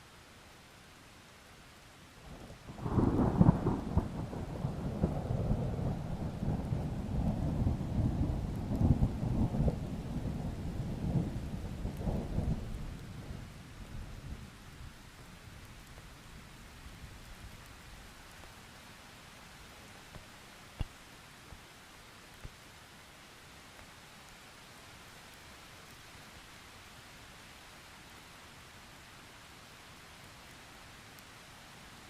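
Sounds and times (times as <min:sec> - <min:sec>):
light rain: 0:00.0 - 0:32.0
thunder crack and rumble: 0:02.8 - 0:13.4.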